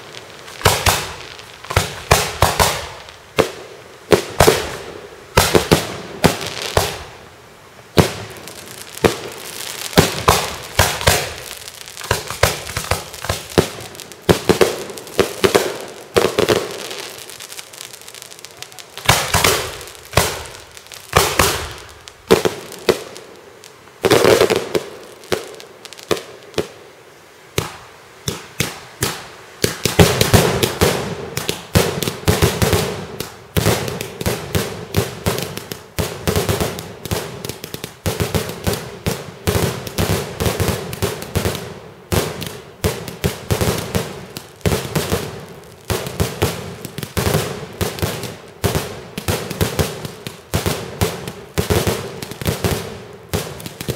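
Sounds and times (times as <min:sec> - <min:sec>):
fireworks bangs: 0:00.0 - 0:07.1, 0:07.9 - 0:26.8, 0:27.6 - 0:53.9.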